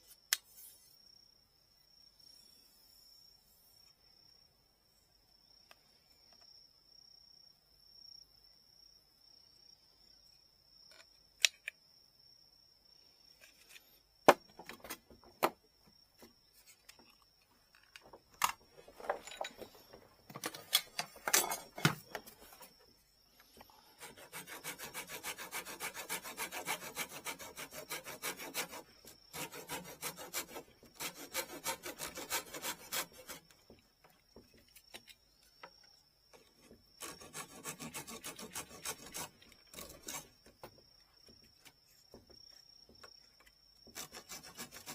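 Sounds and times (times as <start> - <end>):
sharp handling clicks and knocks: 16.2 - 22.7
fast rubbing strokes on wood: 24.0 - 33.4, 37.0 - 40.2, 43.9 - 44.9.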